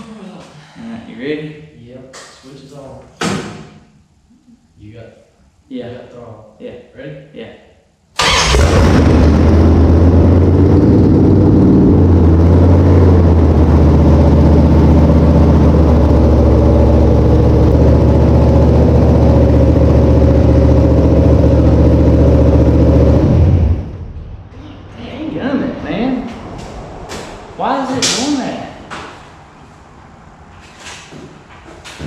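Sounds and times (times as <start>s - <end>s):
race car engine running: 8.5s - 23.9s.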